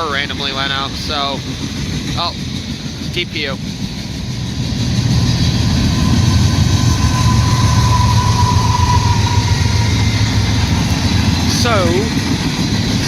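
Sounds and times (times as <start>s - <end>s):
diesel locomotive engine rumble: 0.0s - 13.0s
rail noise: 0.0s - 13.0s
thin whine: 4.4s - 12.7s.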